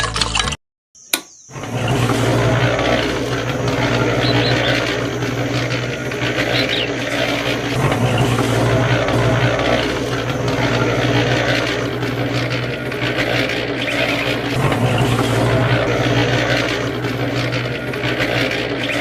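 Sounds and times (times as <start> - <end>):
click: 1.1 - 1.4
small motor humming: 1.2 - 19.0.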